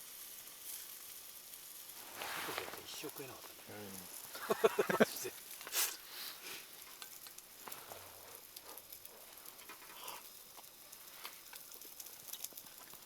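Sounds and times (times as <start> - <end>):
meat sizzling on a grill pan: 0.0 - 13.0
small crackles and ticks: 0.0 - 13.0.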